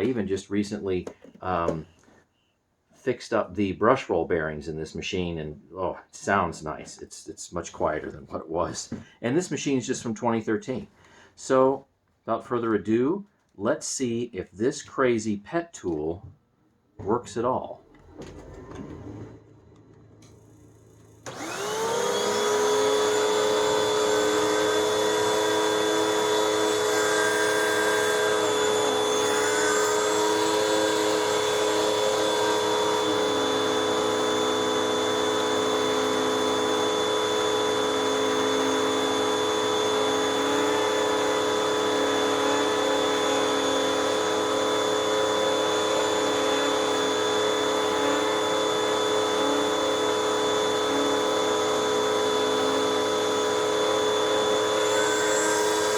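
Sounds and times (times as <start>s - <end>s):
vacuum cleaner motor whining: 17.8s - 55.9s.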